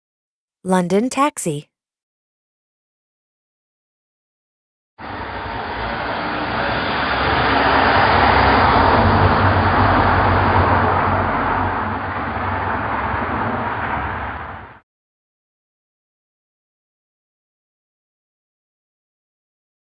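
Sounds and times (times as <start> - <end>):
road noise: 5.0 - 14.8
taxi engine: 5.0 - 14.8.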